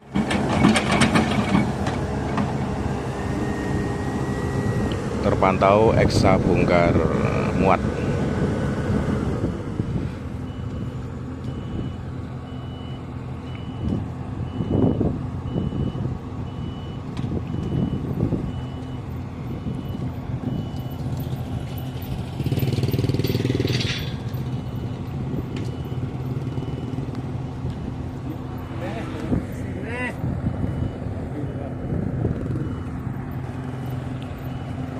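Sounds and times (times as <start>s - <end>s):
heavy machinery diesel engine: 0.0s - 34.9s
backup alarm beeping: 10.4s - 23.5s, 24.3s - 27.2s, 30.4s - 31.1s, 32.4s - 34.9s.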